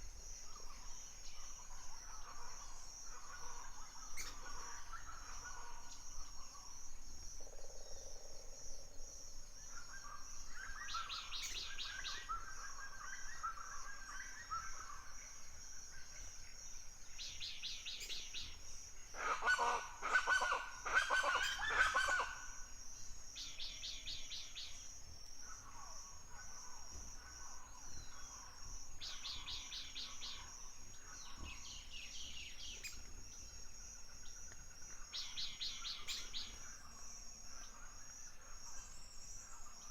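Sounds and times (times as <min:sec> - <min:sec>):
birds singing: 0:09.7 - 0:15.6, 0:27.6 - 0:33.6, 0:35.1 - 0:37.0
harsh fowl-like calls: 0:19.2 - 0:22.5.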